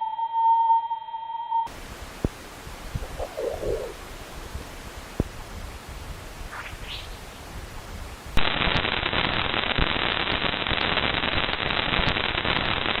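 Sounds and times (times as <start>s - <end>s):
crackling static with pops: 1.7s - 13.0s
faint hiss: 1.7s - 13.0s
rising chirps: 6.5s - 7.3s.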